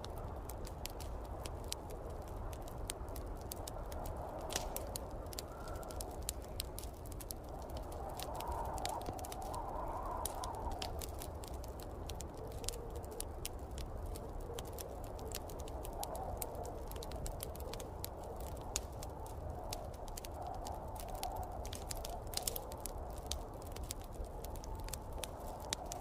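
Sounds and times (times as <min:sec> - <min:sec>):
wood fire crackling: 0:00.0 - 0:26.0
snowstorm wind rushing: 0:00.1 - 0:12.1.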